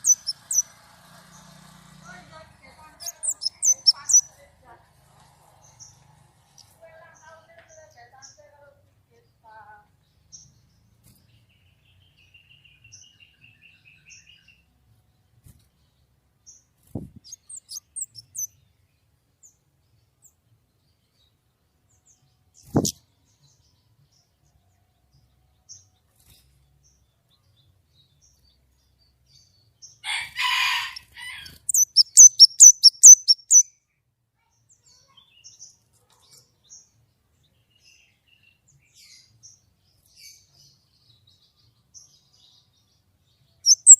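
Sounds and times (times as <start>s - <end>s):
bird singing: 0.0s - 0.7s, 2.7s - 4.5s, 7.0s - 15.3s, 15.9s - 26.0s, 26.8s - 33.8s, 36.3s - 43.9s.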